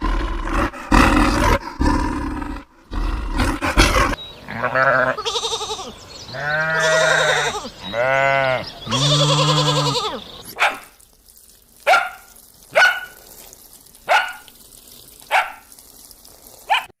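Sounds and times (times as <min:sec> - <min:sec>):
drawn-out bleat: 0:04.4 - 0:10.3
dog barking: 0:10.5 - 0:10.9, 0:11.8 - 0:13.2, 0:14.1 - 0:14.5, 0:15.3 - 0:15.7, 0:16.6 - 0:17.0.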